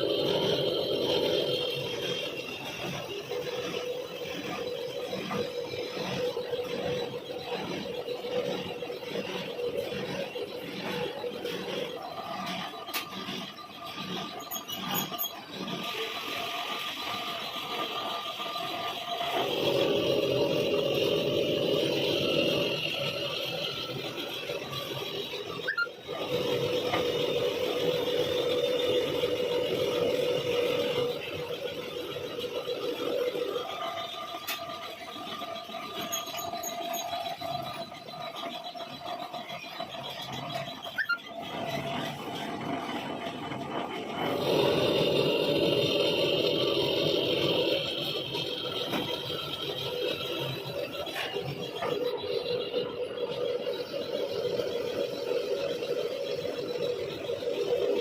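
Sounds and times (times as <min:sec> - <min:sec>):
metal lathe cutting thread: 0:00.0 - 0:58.0.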